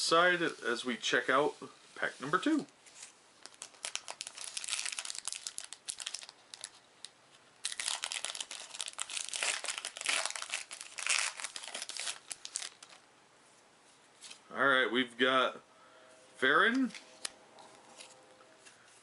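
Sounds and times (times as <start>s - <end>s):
wrapper crinkling and tearing: 3.0s - 13.0s.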